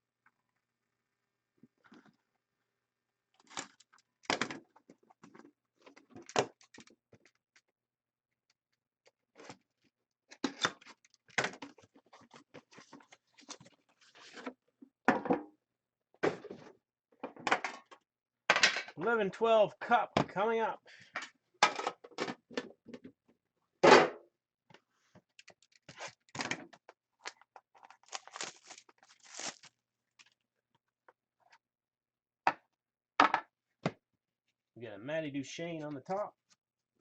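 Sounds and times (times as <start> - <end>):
card packaging rustling and crinkling: 10.7 - 14.5, 25.3 - 30.4.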